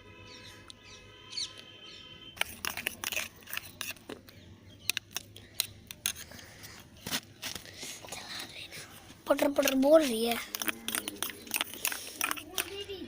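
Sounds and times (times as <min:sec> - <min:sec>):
sticky slime clicking and crackling: 0:09.3 - 0:12.9.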